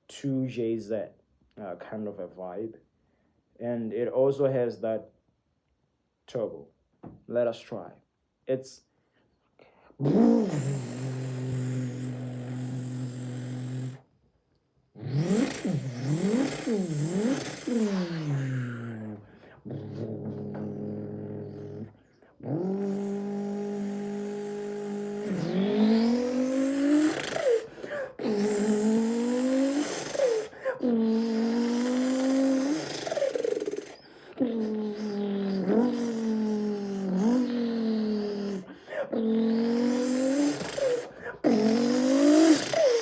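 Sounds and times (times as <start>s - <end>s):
man imitating engine with mouth: 9.7s - 14.1s, 14.9s - 43.0s.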